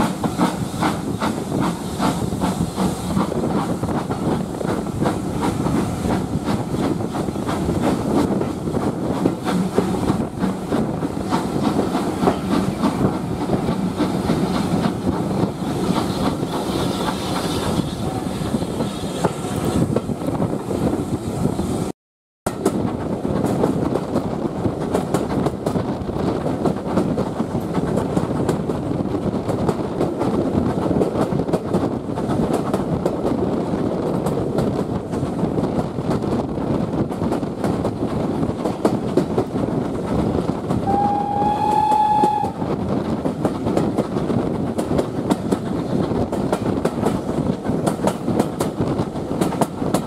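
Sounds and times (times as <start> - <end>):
steam hiss: 0.0 - 8.1
train wheels clicking over rail joints: 0.0 - 21.0, 22.5 - 50.0.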